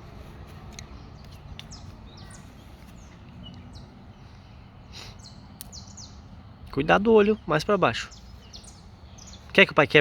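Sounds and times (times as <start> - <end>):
birds chirping: 0.0 - 10.0
outdoor background rumble: 0.0 - 10.0
faint sharp clicks: 5.6 - 5.8.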